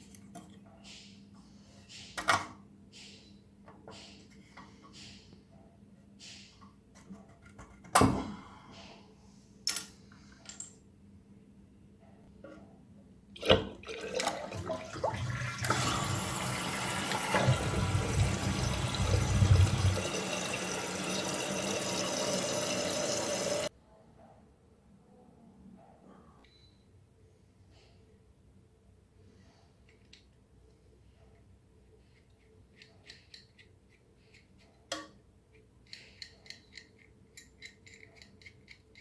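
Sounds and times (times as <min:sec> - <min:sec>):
toilet flush water rushing: 0:13.4 - 0:23.7.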